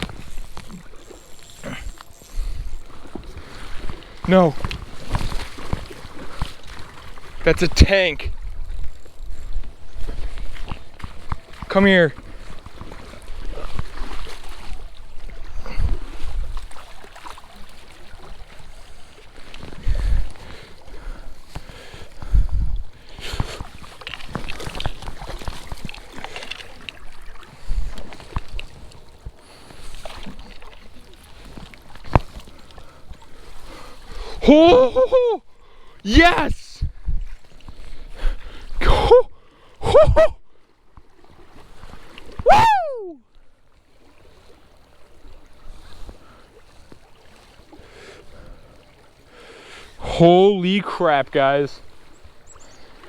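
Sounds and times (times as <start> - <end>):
running creek: 0.0 - 53.0
fish splashing in water: 8.5 - 22.0, 23.2 - 34.2.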